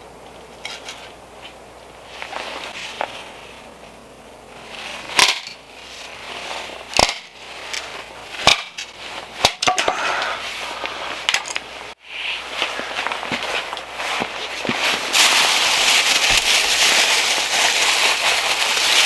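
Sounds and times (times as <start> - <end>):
axe chopping firewood: 7.0 - 7.3, 8.4 - 8.8, 9.4 - 10.2.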